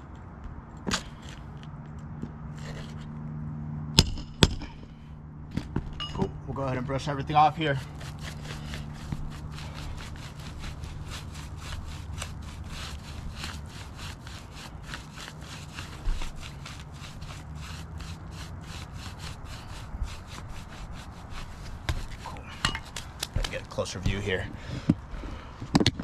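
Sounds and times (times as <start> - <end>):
brush sweeping roof shingles: 6.6 - 25.4.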